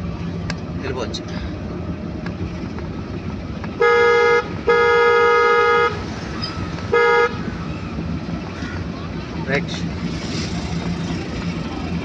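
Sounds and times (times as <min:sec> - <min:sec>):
low hum of car in traffic: 0:00.0 - 0:12.0
vehicle horn honking: 0:03.8 - 0:06.1, 0:06.9 - 0:07.5.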